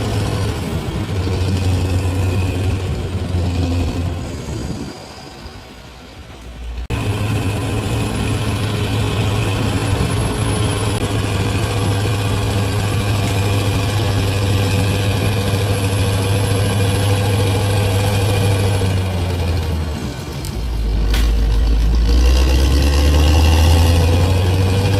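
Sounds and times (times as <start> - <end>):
bulldozer diesel engine running: 0.0 - 24.9.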